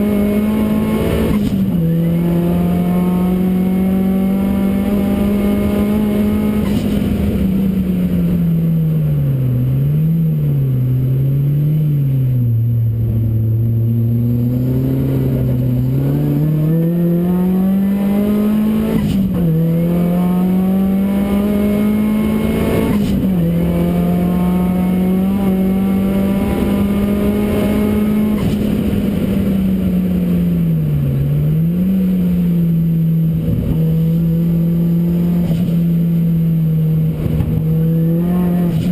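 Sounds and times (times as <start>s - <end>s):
racing car engine revving: 0.0s - 8.5s, 9.7s - 38.9s.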